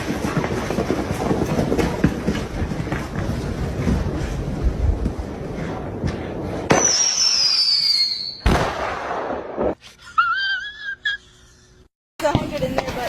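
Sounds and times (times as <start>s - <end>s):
firework bangs: 0.0s - 9.8s
fireworks crackling: 0.0s - 9.8s
falling whistle: 6.7s - 8.4s.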